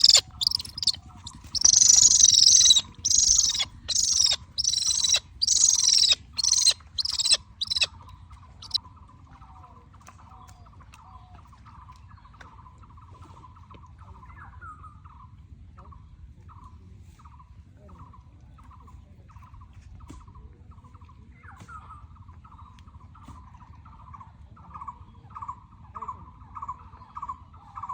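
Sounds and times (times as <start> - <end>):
bird harsh hissing screeches: 0.0 - 7.9
faint fast chirping: 0.0 - 7.9.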